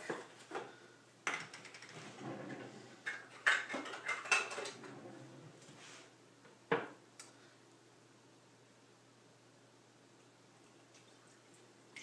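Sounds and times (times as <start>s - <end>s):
dishes and utensils clinking: 3.0s - 4.9s.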